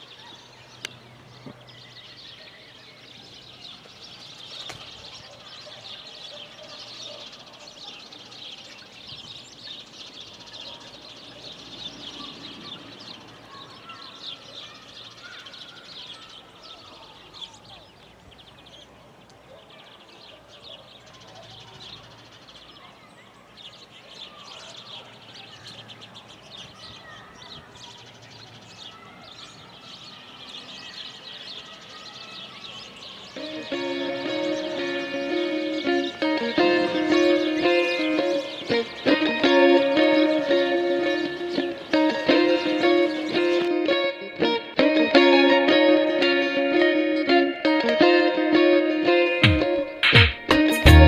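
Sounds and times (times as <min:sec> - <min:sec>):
small birds chirping and twittering: 0:00.0 - 0:51.0.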